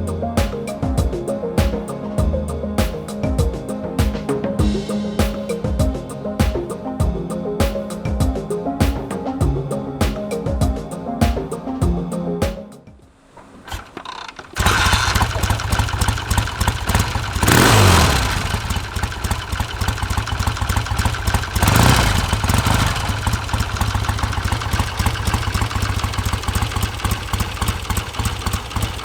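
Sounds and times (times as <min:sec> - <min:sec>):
motorcycle engine idling and revving: 0:13.4 - 0:29.0.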